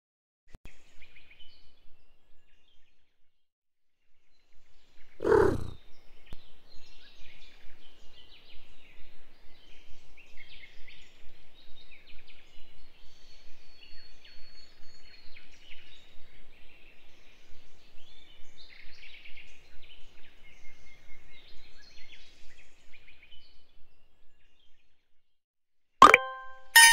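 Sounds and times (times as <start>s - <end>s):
birds chirping and chattering: 5.2s - 5.8s.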